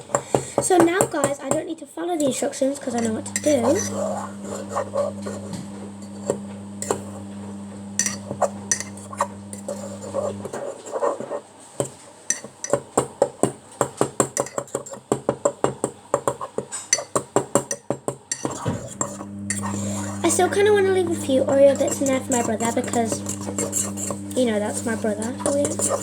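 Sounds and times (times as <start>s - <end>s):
steady low hum: 2.8s - 10.5s, 18.8s - 26.0s
fork clinking against a mug: 8.0s - 10.2s, 16.9s - 20.1s, 21.7s - 24.2s, 24.9s - 26.0s.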